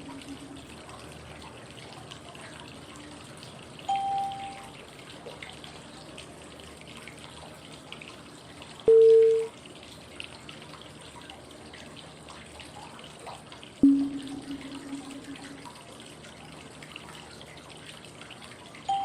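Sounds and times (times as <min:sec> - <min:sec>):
flowing water white noise: 0:00.0 - 0:01.4
short prompt tone: 0:03.9 - 0:04.7, 0:08.9 - 0:09.5, 0:13.8 - 0:15.8.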